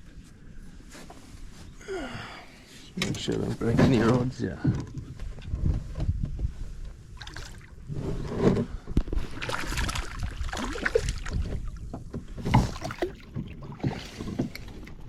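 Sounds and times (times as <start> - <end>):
water splashing: 7.2 - 7.8, 9.1 - 15.0.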